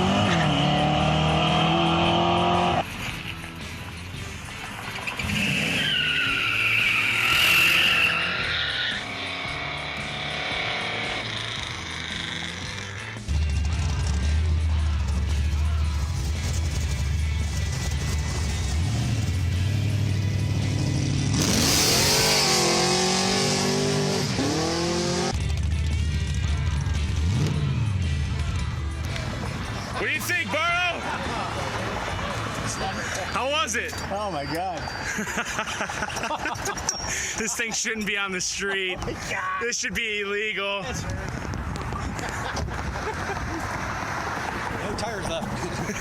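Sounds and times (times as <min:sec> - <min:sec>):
tires squealing: 0:00.0 - 0:03.5, 0:04.5 - 0:13.3, 0:29.0 - 0:39.5, 0:40.9 - 0:46.0
car engine idling and revving: 0:00.0 - 0:36.9, 0:41.0 - 0:46.0
car engine running: 0:09.1 - 0:21.8, 0:41.3 - 0:46.0.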